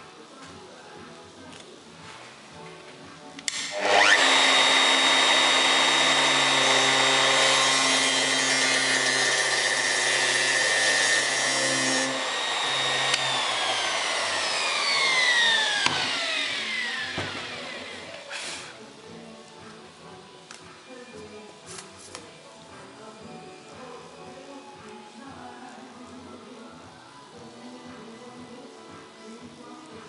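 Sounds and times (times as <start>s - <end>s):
router motor whine: 3.5s - 18.4s
router bit cutting plywood: 3.5s - 18.5s.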